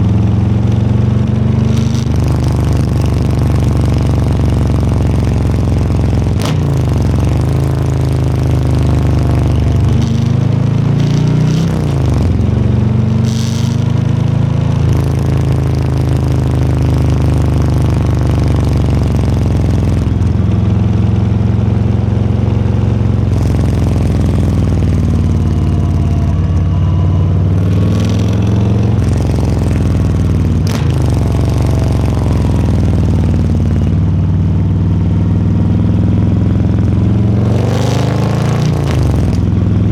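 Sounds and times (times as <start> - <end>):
motorcycle engine running: 0.0 - 39.9
sharp clicks: 27.6 - 33.9.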